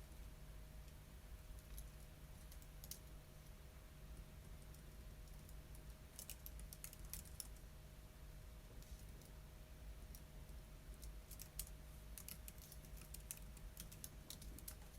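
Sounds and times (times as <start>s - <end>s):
keyboard typing: 4.6s - 7.6s, 11.0s - 14.9s.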